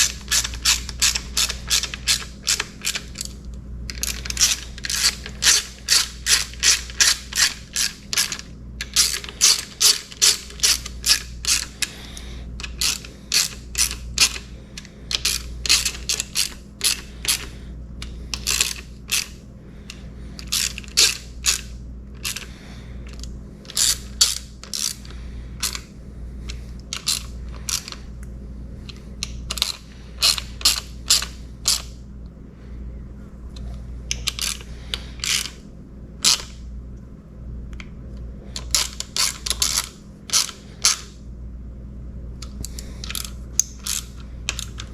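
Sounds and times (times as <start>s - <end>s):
ratchet wrench clicking: 0.0s - 11.9s, 12.6s - 19.4s, 20.4s - 22.5s, 23.1s - 25.8s, 26.9s - 28.0s, 29.2s - 31.9s, 42.4s - 44.9s.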